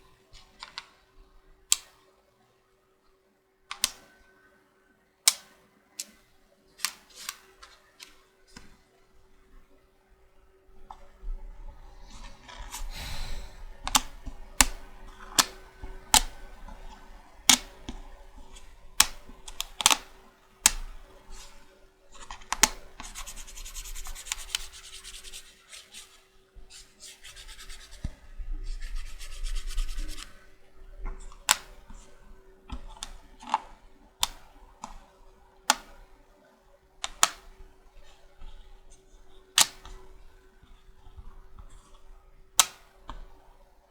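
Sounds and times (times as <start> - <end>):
checker pieces clicking: 3.7 - 4.1, 18.5 - 20.1, 37.0 - 37.4
pieces rubbing and sliding: 23.0 - 28.1.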